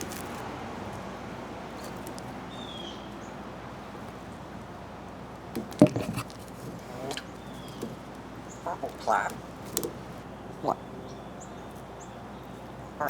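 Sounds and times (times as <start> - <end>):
outdoor background noise: 0.0 - 13.0
bird call: 6.9 - 13.0.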